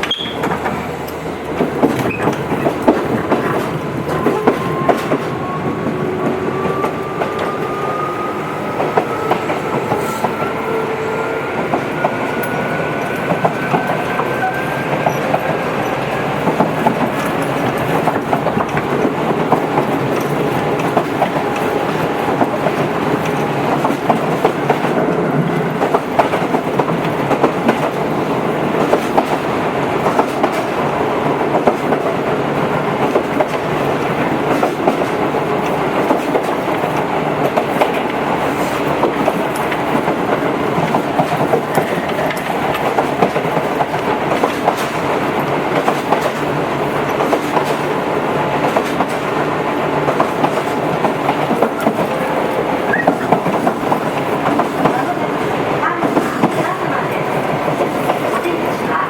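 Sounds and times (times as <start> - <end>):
train rolling rumble: 0.0 - 59.0
wheels clicking over rails: 11.6 - 58.8.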